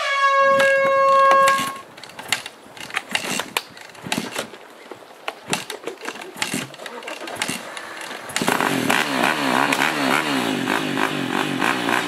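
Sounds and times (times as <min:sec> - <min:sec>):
air horn blast: 0:00.0 - 0:01.8.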